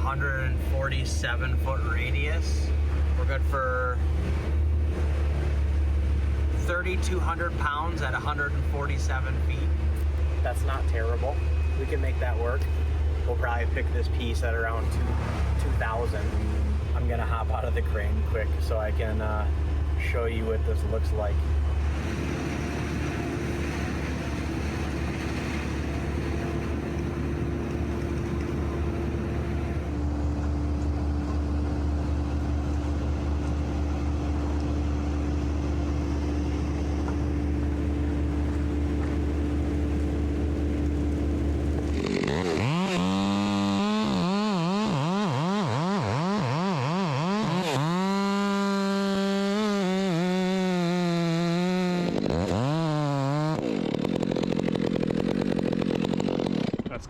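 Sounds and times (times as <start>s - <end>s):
crane engine idling: 0.1s - 45.5s
chainsaw revving: 21.7s - 30.0s, 41.6s - 57.0s.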